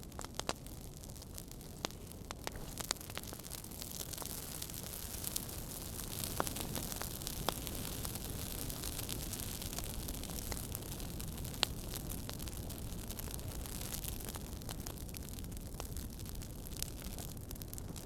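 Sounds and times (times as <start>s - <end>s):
fire crackling: 0.0s - 18.0s
fire pops: 0.0s - 18.0s.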